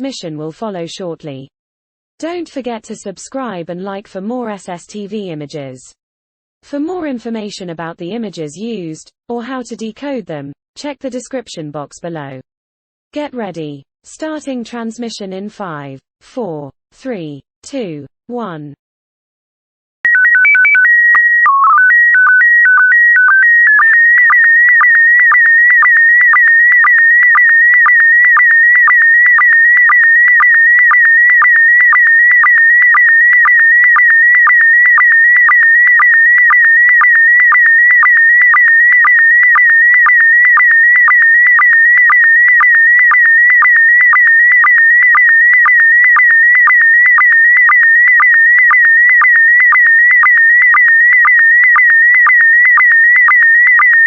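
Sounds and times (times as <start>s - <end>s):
regular sync pulse: 20.1s - 54.0s.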